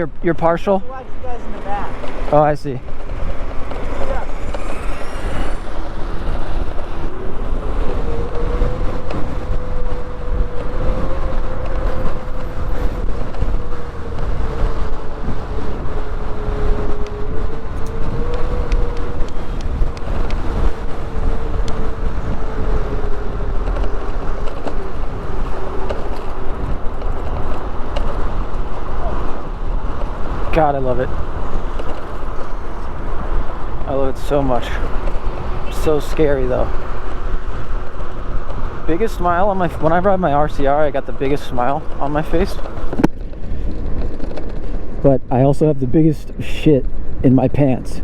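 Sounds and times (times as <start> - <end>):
road rumble: 0.0 - 48.0
wind buffeting microphone: 0.0 - 48.0
electric motor whine: 3.1 - 30.4.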